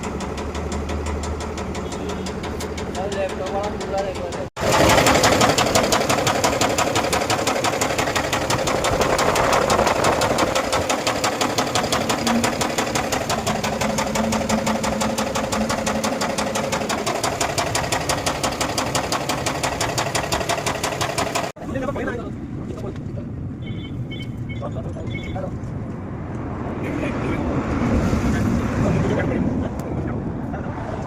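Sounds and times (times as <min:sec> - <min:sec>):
diesel engine knocking clatter: 0:00.0 - 0:21.6.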